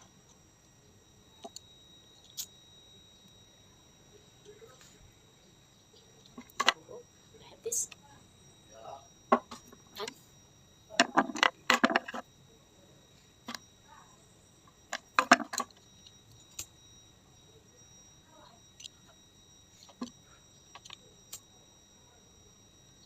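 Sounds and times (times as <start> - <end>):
clicks and knocks of parts and tools: 19.8 - 21.4.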